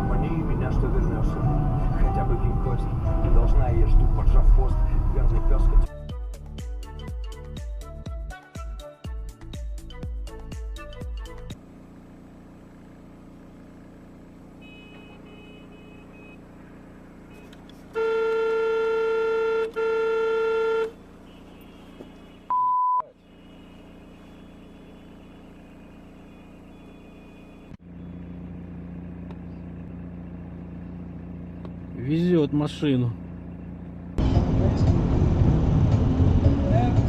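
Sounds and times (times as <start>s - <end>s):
vehicle cab hum: 13.7s - 37.0s
vehicle horn blasts: 14.5s - 28.2s
censor bleep: 22.5s - 23.2s.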